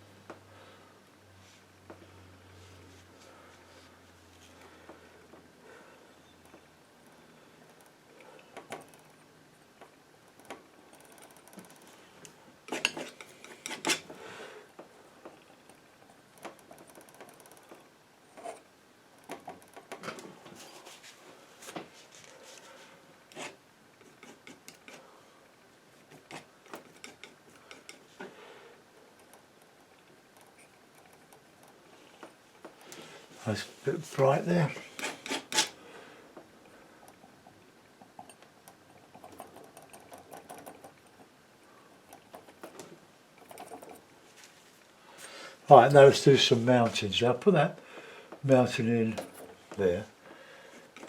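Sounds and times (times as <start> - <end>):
palette knife scraping paint: 12.7 - 14.1, 23.3 - 25.1, 34.2 - 35.8.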